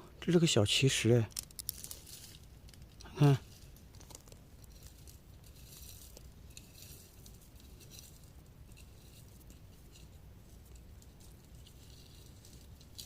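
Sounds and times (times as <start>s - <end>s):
small stone handled clicking: 1.3s - 8.5s.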